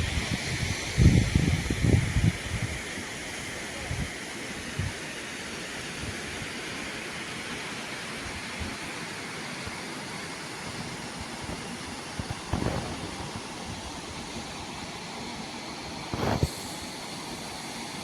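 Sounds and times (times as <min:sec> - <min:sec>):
rushing wind: 0:00.0 - 0:05.0, 0:10.6 - 0:14.7
low thumps: 0:12.2 - 0:13.6.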